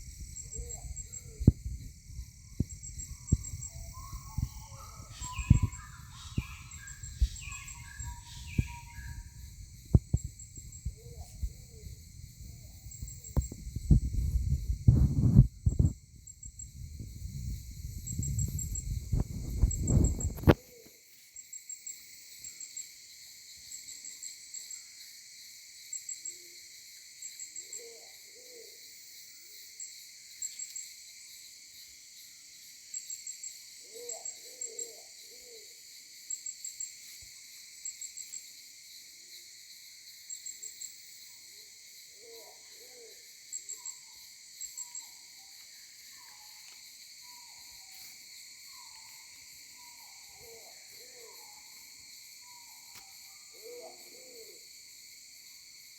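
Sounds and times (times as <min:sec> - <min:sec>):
high insect drone: 0:00.0 - 0:55.9
low hooting bird calls: 0:03.0 - 0:09.7.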